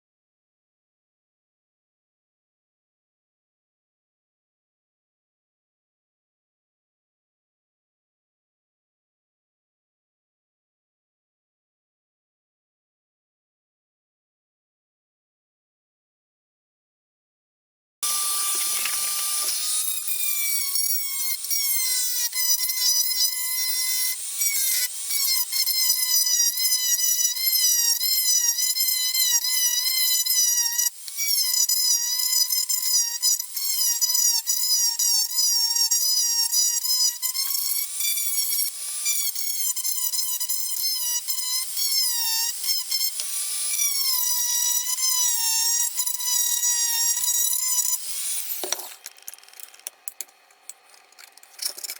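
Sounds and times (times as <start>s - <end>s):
high-speed power tool whine: 18.0s - 51.9s.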